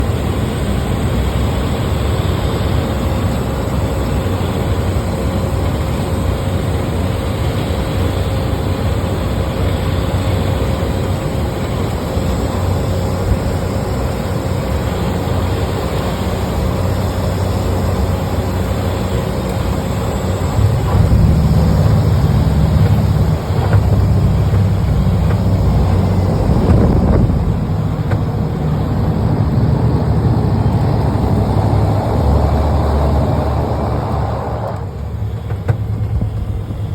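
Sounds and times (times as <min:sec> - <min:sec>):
airplane cabin roar: 0:00.0 - 0:36.9
faint high whine: 0:00.0 - 0:36.9
heavy low rumble: 0:19.9 - 0:36.9.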